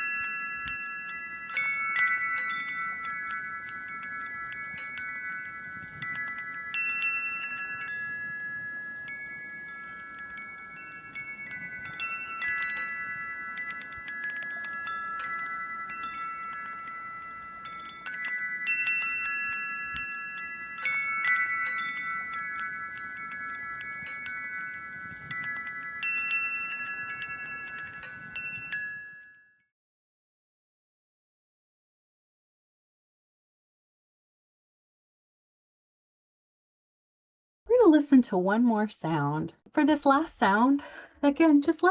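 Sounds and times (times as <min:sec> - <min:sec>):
wind chimes ringing: 0:00.0 - 0:29.7.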